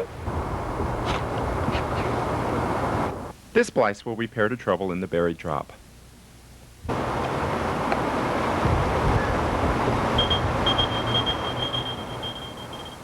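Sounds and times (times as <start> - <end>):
vehicle running: 6.9 - 13.0
pager beeping: 10.2 - 13.0.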